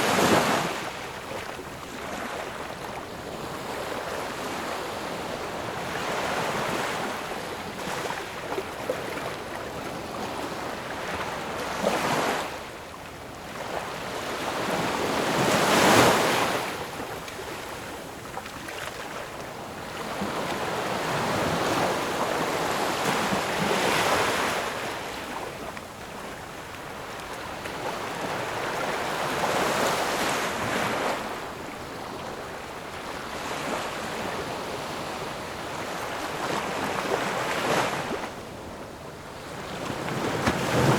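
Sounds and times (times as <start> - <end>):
ocean waves breaking: 39.4 - 40.9.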